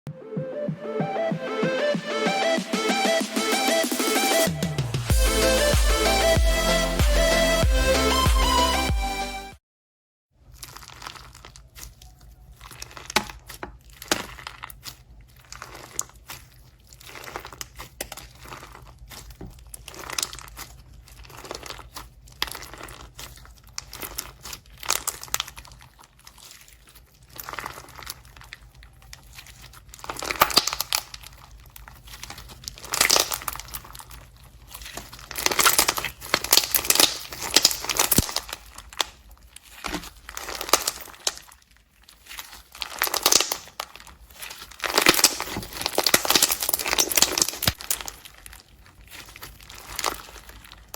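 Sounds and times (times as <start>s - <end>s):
slime crackling and popping: 10.4s - 50.9s.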